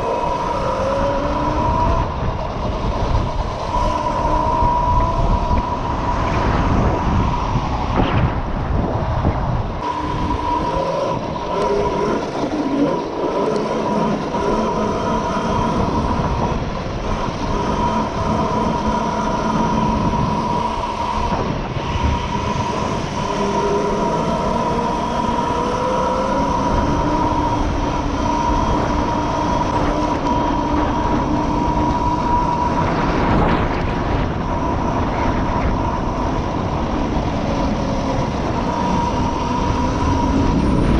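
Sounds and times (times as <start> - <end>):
mini bike engine revving: 0.0 - 5.8, 9.8 - 40.9.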